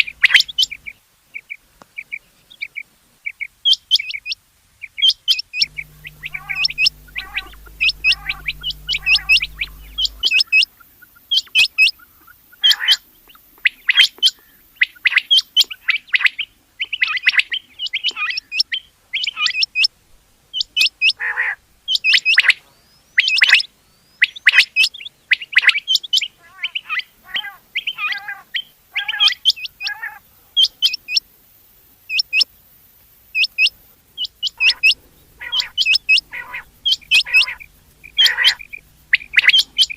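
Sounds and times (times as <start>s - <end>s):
quail calling sharp high notes: 5.6s - 10.6s, 33.4s - 39.9s.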